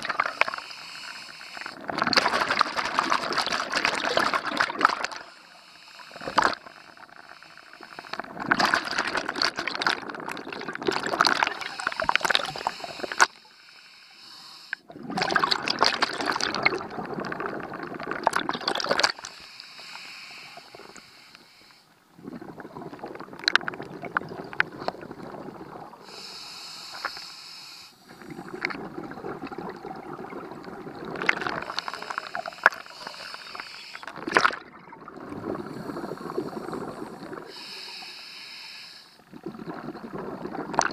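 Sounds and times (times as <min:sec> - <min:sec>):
diver breathing through regulator: 0:00.4 - 0:01.8, 0:11.6 - 0:14.9, 0:19.3 - 0:21.9, 0:26.0 - 0:28.6, 0:31.5 - 0:34.2, 0:35.4 - 0:39.2.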